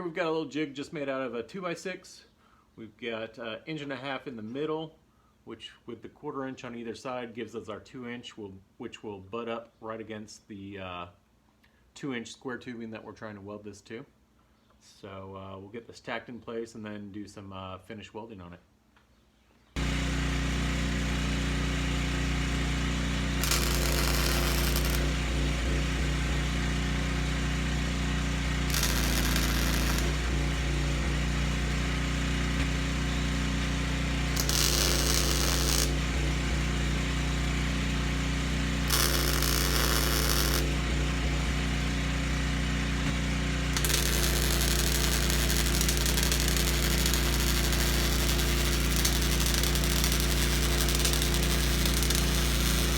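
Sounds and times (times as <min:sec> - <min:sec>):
welding machine hum: 0:19.8 - 0:52.9
welding arc crackling: 0:22.4 - 0:41.8, 0:43.2 - 0:52.9.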